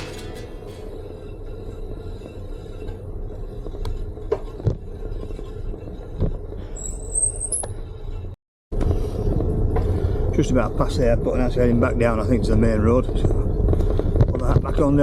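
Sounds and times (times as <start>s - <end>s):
high squeak: 0.0s - 1.4s
bike tyres rumbling on rough path: 8.8s - 15.0s.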